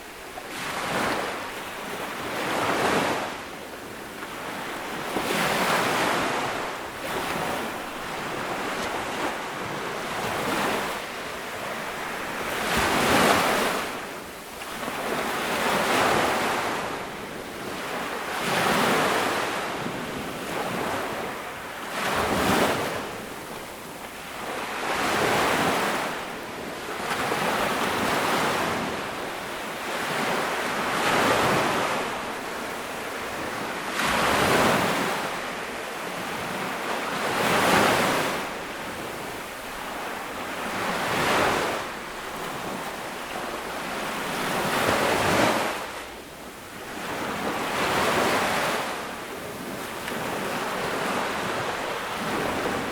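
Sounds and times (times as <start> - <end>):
ocean waves breaking on beach: 0.0 - 52.9.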